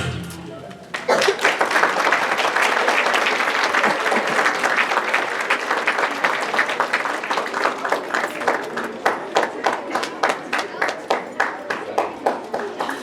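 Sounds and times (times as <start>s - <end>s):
music: 0.0s - 0.7s
audience applauding: 0.7s - 13.0s.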